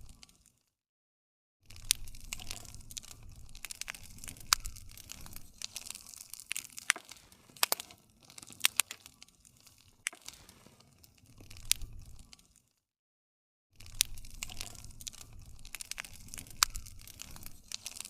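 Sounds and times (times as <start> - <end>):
wood fire crackling and popping: 0.0 - 0.6, 1.7 - 12.8, 13.8 - 18.0
low rumble of flames: 1.7 - 12.6, 13.8 - 18.0.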